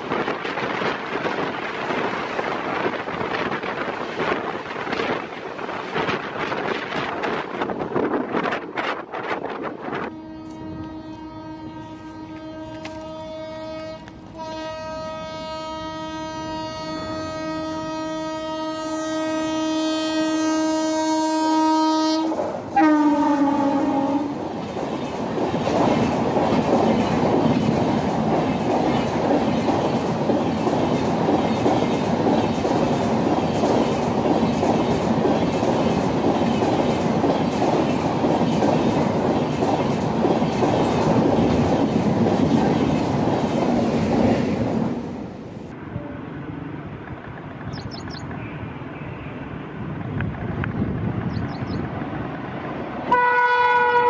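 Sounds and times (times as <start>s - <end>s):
locomotive horn: 10.0s - 24.4s, 53.1s - 54.0s
train wheels clattering on rails: 22.2s - 45.2s.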